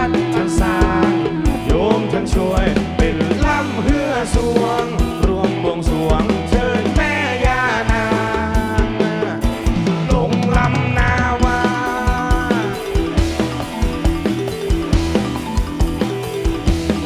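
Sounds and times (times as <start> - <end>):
drum kit beating: 0.0 - 17.0
gliding lead melody: 0.0 - 17.0
live rock band playing: 0.0 - 17.0.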